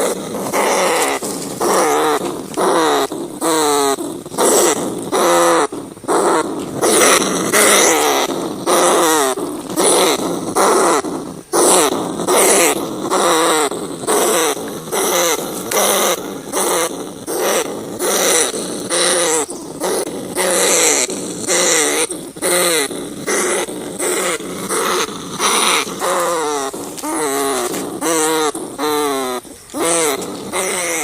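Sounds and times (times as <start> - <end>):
rat squealing: 0.0 - 31.0.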